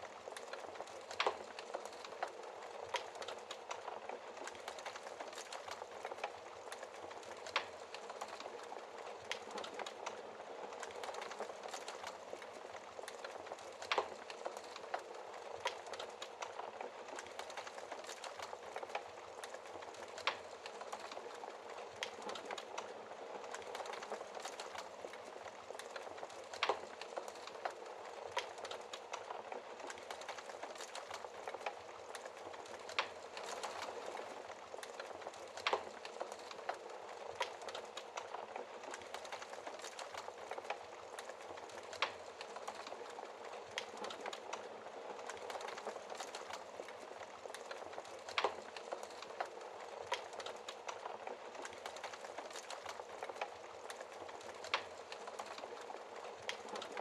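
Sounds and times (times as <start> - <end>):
fire popping: 0.0 - 57.0
wood fire crackling: 0.0 - 57.0.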